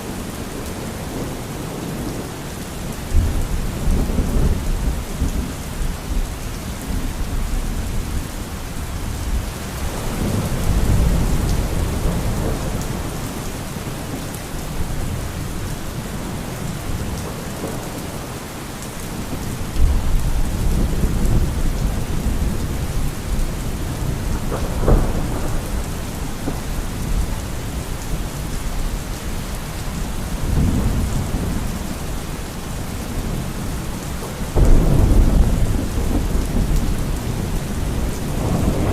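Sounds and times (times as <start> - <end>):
heavy rain hissing: 0.0 - 38.9
rolling thunder: 19.2 - 29.5, 30.1 - 38.9
sharp thunderclap: 23.8 - 27.2, 34.5 - 38.9.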